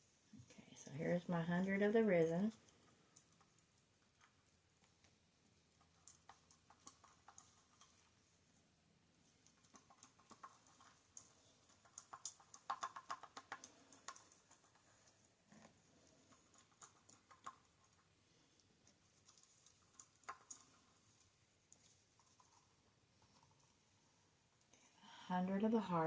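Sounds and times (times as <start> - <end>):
plastic bottles and cups clicking: 9.6 - 14.8.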